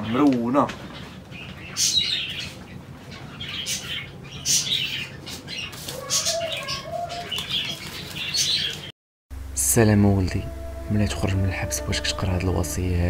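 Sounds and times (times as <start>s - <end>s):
small birds chirping: 0.0s - 8.9s
low steady hum: 9.3s - 13.0s.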